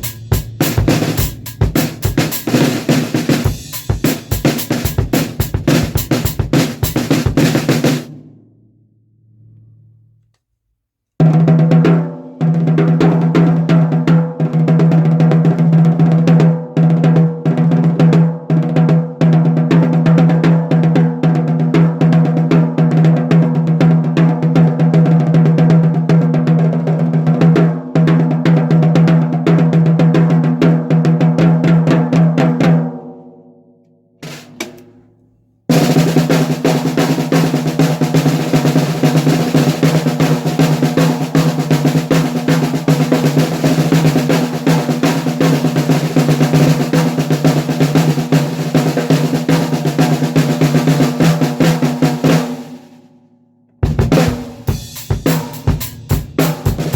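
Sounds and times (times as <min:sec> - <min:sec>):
snare drum strokes and rolls: 0:00.0 - 0:08.2, 0:34.2 - 0:35.1, 0:35.7 - 0:53.0, 0:53.8 - 0:56.9.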